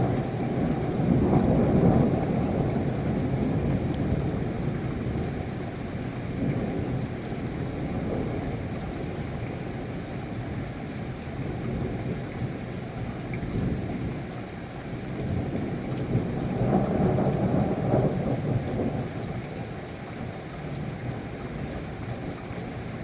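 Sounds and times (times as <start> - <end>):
thunder rumbling: 0.0 - 5.3
steady rain: 0.0 - 23.0.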